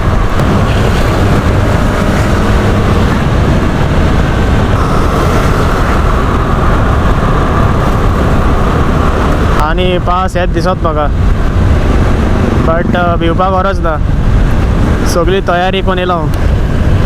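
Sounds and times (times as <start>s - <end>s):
motorbike engine and road noise: 0.0s - 17.0s
wind rushing on microphone: 0.0s - 17.0s
faint steady whine: 4.8s - 8.8s.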